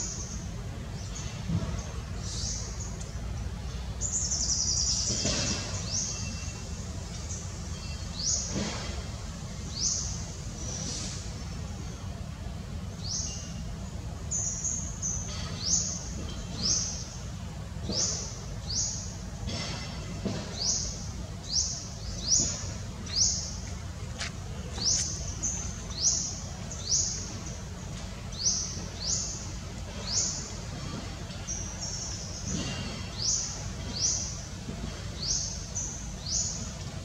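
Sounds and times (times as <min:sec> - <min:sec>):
steady low rumble: 0:16.0 - 0:37.0.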